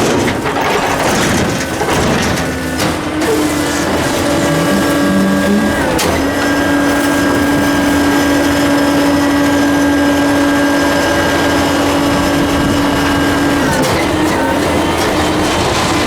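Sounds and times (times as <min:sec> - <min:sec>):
diesel engine running: 0:00.0 - 0:16.0
hydraulic pump whining: 0:00.0 - 0:16.0.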